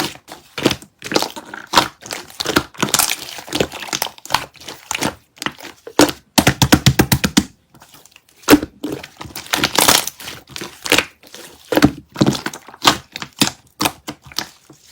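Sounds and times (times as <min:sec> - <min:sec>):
packaging crackling and crinkling: 0:00.0 - 0:06.2, 0:07.6 - 0:14.9
taps on candy packaging: 0:00.6 - 0:07.6, 0:11.7 - 0:14.5.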